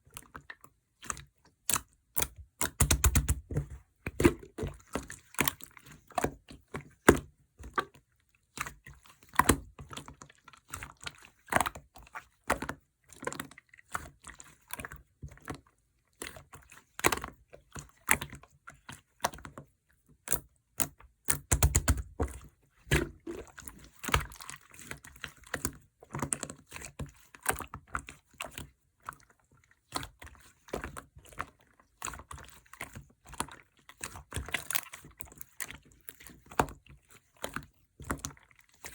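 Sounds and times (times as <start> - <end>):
slime squelching and popping: 0.1 - 14.8, 20.2 - 29.2.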